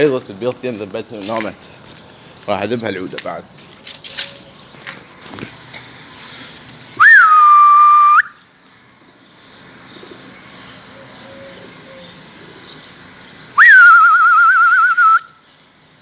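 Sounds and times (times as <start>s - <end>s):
shrill whistle: 7.0s - 8.4s, 13.6s - 15.3s.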